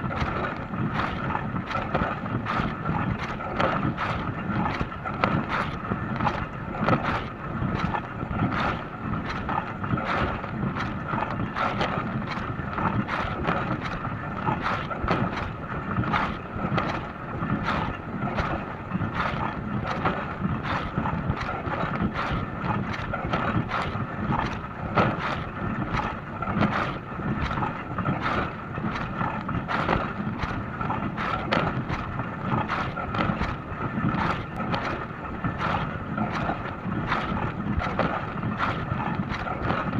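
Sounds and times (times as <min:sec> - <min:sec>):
dishwasher motor hum: 0:24.4 - 0:39.9.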